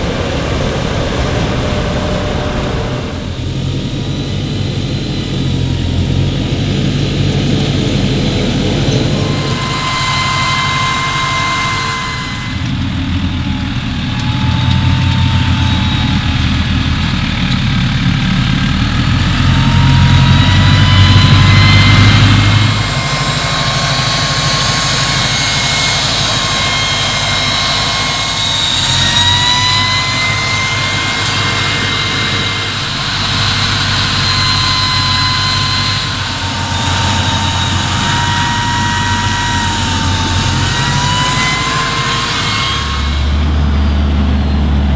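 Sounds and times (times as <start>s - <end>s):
diesel engine rumbling under load: 0.0s - 44.9s
high whine: 0.0s - 44.9s.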